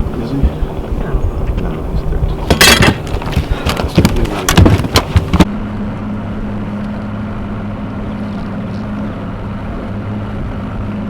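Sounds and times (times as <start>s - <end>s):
boat motor humming: 0.0s - 11.0s
handling knocks: 2.4s - 5.5s.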